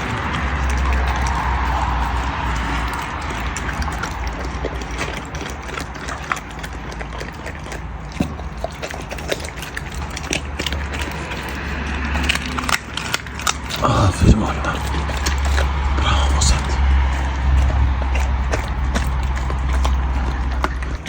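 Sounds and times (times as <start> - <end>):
wolf chewing and crunching food: 0.0 - 21.0
steady low rumble: 13.6 - 21.0.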